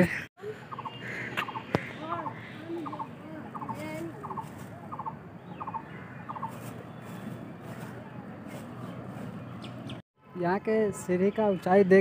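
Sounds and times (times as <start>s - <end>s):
bird calling in quick bursts: 0.7s - 7.9s.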